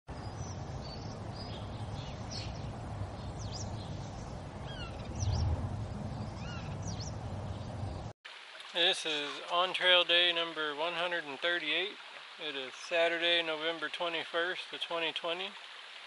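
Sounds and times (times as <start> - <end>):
steady low rumble: 0.2 - 8.1
wild birds chirping and whistling: 0.2 - 8.1.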